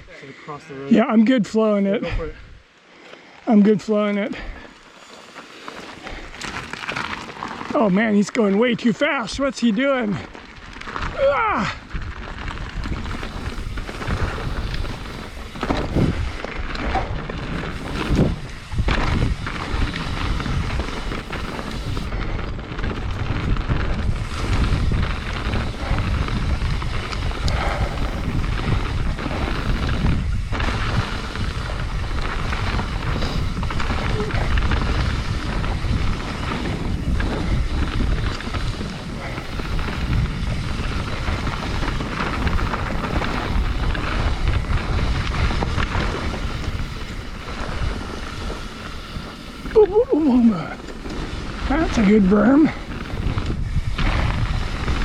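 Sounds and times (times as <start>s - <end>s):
bike tyres rolling on dirt: 0.0s - 55.0s
bike knocking over rough ground: 5.7s - 8.7s, 10.2s - 49.8s
wind on microphone: 10.9s - 55.0s.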